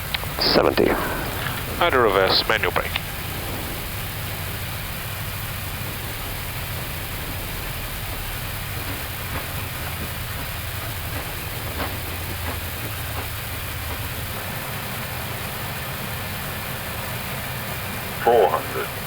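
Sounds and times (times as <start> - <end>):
faint clicks: 0.0 - 14.6
even hiss: 0.0 - 19.0
low engine rumble: 0.0 - 19.0.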